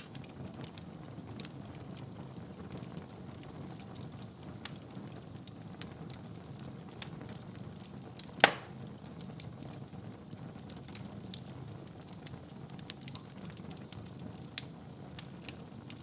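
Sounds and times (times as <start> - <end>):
loud snap of fire: 0.0 - 2.0, 3.0 - 16.0
wood fire crackling: 0.0 - 16.0.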